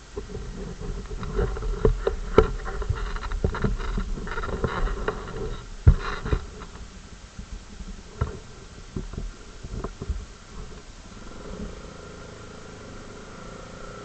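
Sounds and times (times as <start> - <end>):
sharp knocks and rattles: 0.0 - 10.9
atv engine humming: 0.0 - 14.0.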